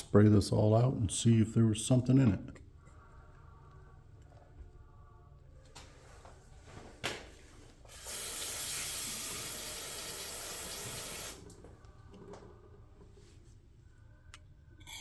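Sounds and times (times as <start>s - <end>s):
hissing cleaner spray: 7.9s - 11.5s.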